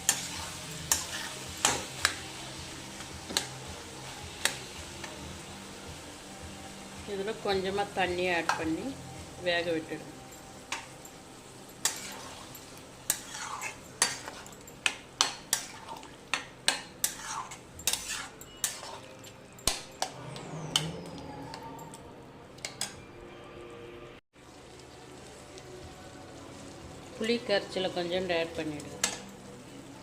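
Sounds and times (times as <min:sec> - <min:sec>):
low cooking noise: 0:00.0 - 0:30.0
metal spoon clinking on pot: 0:11.8 - 0:23.1, 0:28.8 - 0:29.4.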